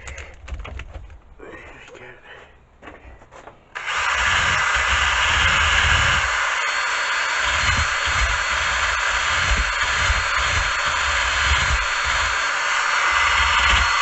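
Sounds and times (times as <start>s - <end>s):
drill with wire brush: 3.8s - 14.0s.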